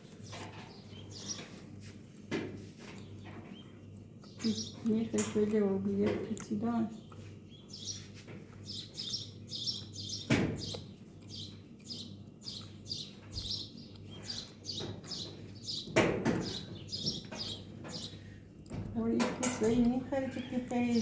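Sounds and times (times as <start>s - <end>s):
small bird chirping: 0.6s - 1.6s, 3.0s - 5.2s, 6.9s - 18.3s.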